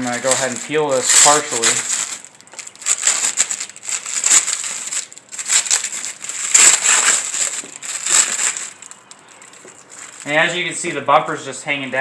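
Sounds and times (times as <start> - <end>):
plastic film peeling: 0.0 - 10.5.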